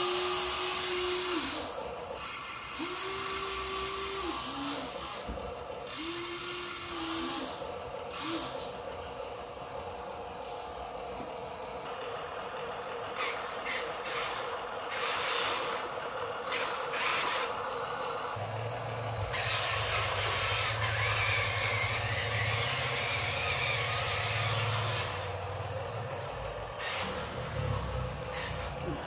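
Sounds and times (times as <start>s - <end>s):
hiss: 0.0s - 11.9s, 13.2s - 29.0s
toy truck motor whirring: 0.0s - 29.0s
deeper hum: 15.6s - 29.0s.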